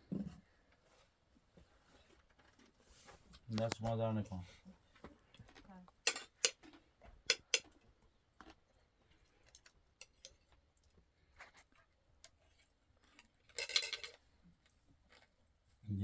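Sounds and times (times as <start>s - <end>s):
spoons and dishes clinking: 6.0s - 7.8s, 9.4s - 10.5s, 13.1s - 14.2s.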